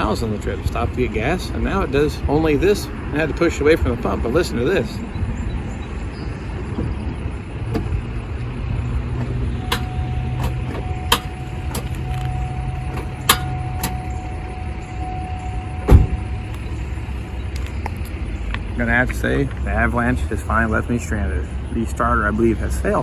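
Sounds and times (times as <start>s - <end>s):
steady tone: 7.4s - 17.1s
starter clicking: 9.0s - 14.2s
loud thump: 15.8s - 16.3s.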